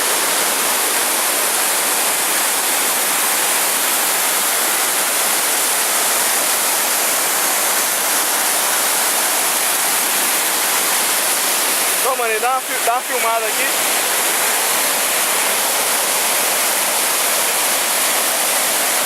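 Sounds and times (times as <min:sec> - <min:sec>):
waterfall crashing: 0:00.0 - 0:19.0.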